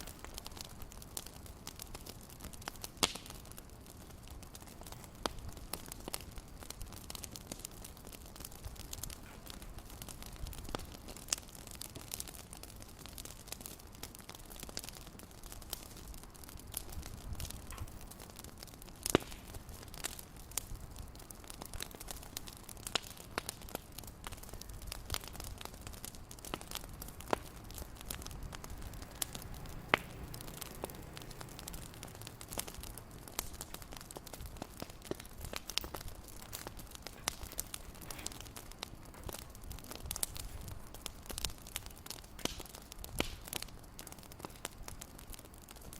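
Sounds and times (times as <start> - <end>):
wood fire crackling: 0.0 - 45.9
low steady rumble: 24.3 - 42.2.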